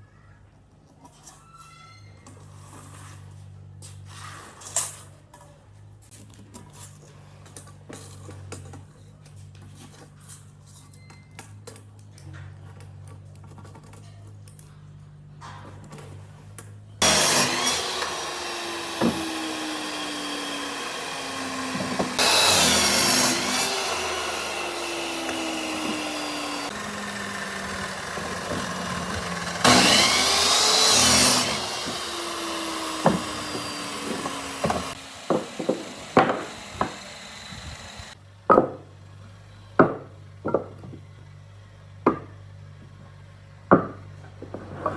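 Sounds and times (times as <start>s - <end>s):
power tool cutting wood: 17.0s - 38.2s.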